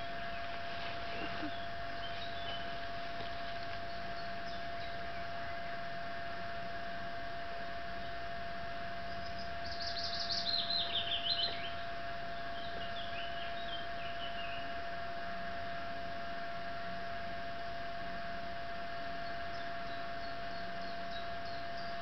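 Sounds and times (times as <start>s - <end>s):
songbird singing: 0.0s - 6.6s, 8.9s - 16.0s, 18.9s - 22.0s
steady faint hum: 0.0s - 22.0s.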